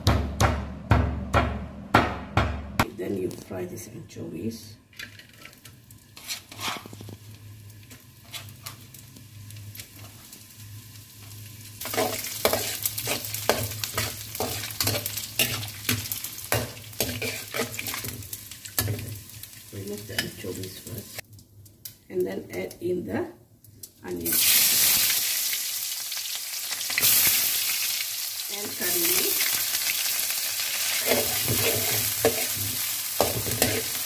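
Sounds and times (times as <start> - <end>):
metal spatula scraping wok: 5.0 - 7.2, 7.9 - 9.0, 11.8 - 18.2, 30.8 - 34.0
fish sizzling in hot oil: 5.4 - 21.3, 24.2 - 34.0.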